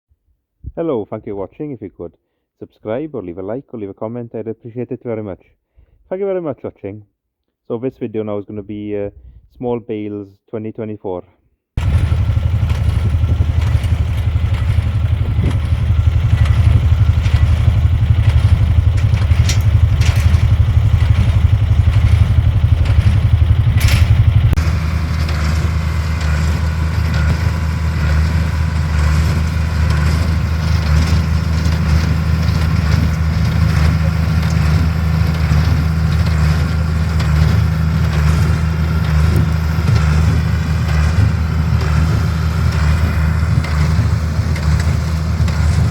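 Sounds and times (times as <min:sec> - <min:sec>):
tractor engine running: 0:11.8 - 0:45.9.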